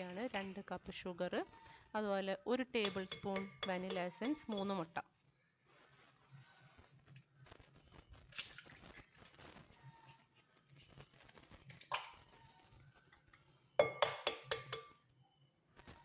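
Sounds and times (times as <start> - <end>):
utensils clinking against bowl: 2.8 - 4.8, 13.8 - 15.0
ringing taps on bowl: 2.8 - 4.9, 13.8 - 15.0.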